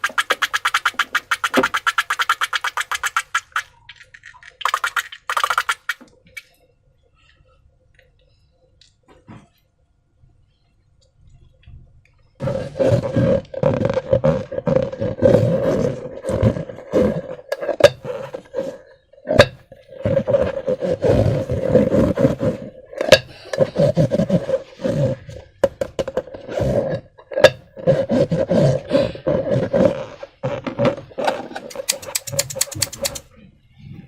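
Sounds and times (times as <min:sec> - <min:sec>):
wet squelching of slime: 0:00.0 - 0:06.5, 0:31.7 - 0:33.3
sharp snaps and clicks: 0:31.7 - 0:33.3.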